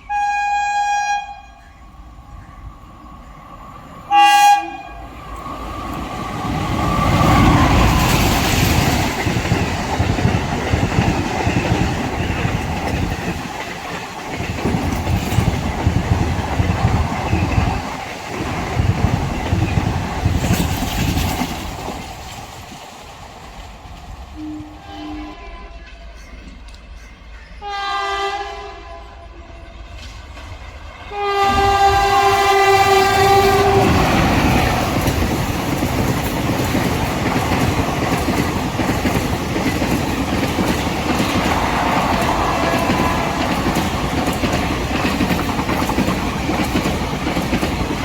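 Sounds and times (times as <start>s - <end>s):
train horn blast: 0.0s - 1.8s, 4.1s - 5.1s, 24.4s - 26.2s, 27.6s - 29.8s, 31.1s - 34.0s, 41.5s - 43.8s
train wheel clatter: 5.3s - 24.4s, 29.9s - 48.0s.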